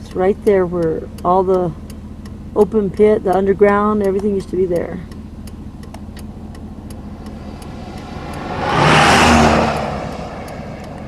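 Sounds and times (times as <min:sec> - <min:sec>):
faint regular ticks: 0:00.0 - 0:08.5, 0:09.8 - 0:11.0
car engine rumble: 0:00.0 - 0:11.0
vehicle passing by: 0:06.1 - 0:11.0.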